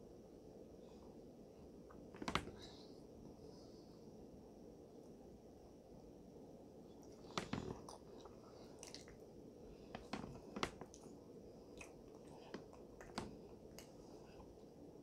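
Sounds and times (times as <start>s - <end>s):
wet chewing with lip smacks: 7.0s - 9.3s, 10.0s - 14.0s.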